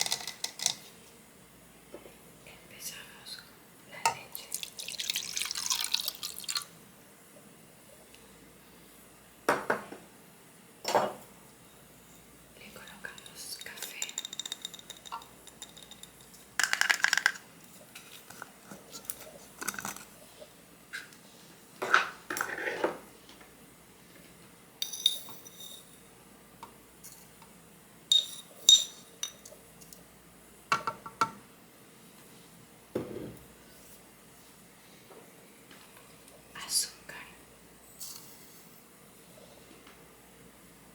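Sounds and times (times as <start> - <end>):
miniature dishes clinking: 13.1 - 17.4, 24.8 - 25.9, 28.1 - 29.6.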